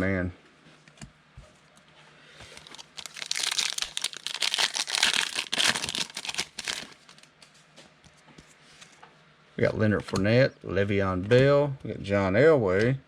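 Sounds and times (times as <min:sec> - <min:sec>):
foil wrapper crinkling: 0:02.5 - 0:07.3.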